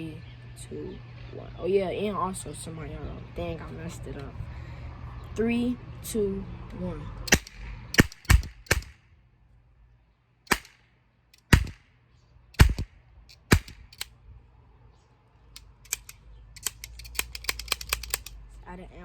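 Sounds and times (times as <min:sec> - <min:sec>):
cap gun shots: 0:07.3 - 0:09.0, 0:10.5 - 0:11.9, 0:12.6 - 0:14.1
light quick clicks: 0:15.5 - 0:18.4.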